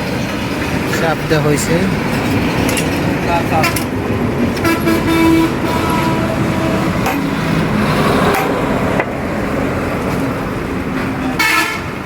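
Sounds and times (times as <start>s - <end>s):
vehicle engines running: 0.0s - 5.8s.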